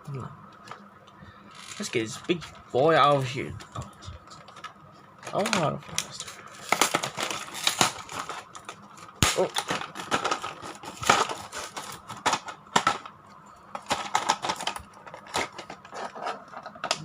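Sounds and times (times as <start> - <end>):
toy packaging crinkling: 1.5 - 13.1, 13.8 - 17.0.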